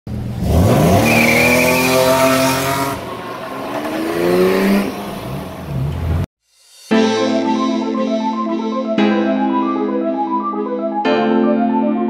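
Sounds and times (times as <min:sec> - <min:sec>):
car engine revving hard: 0:00.1 - 0:06.3.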